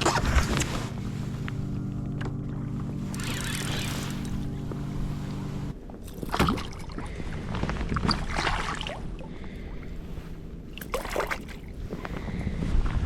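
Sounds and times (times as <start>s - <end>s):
electric motor hum: 0.0s - 5.8s
water splashing: 3.0s - 9.4s, 10.7s - 11.7s.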